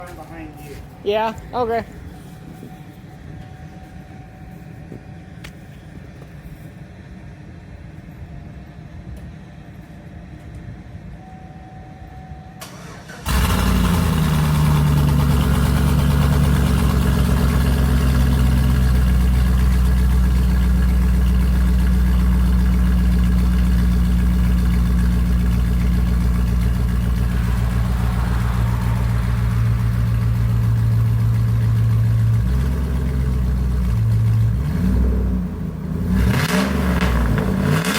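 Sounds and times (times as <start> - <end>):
truck engine starting and idling: 12.5 - 37.9.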